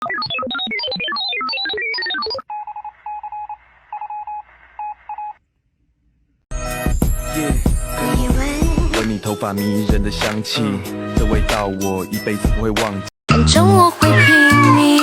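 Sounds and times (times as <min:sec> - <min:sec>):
music: 0:06.5 - 0:15.0.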